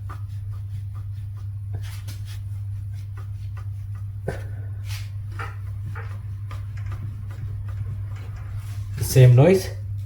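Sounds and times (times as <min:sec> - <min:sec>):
low hum: 0:04.0 - 0:10.0.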